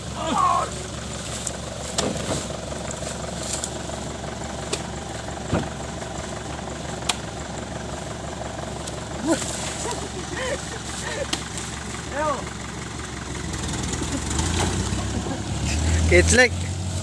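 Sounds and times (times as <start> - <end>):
diesel engine idling: 0.0 - 17.0
sharp engine knocks: 1.4 - 3.8, 4.6 - 8.1, 10.6 - 12.0.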